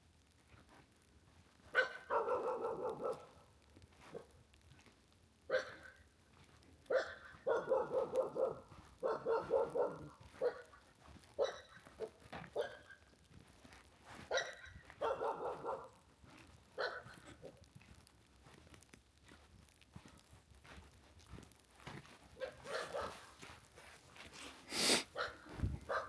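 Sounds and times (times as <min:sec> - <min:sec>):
dog barking: 0:01.7 - 0:03.5, 0:04.1 - 0:04.4, 0:05.5 - 0:06.0, 0:06.9 - 0:13.0, 0:14.3 - 0:16.0, 0:16.8 - 0:17.6, 0:22.4 - 0:23.4, 0:25.2 - 0:26.0.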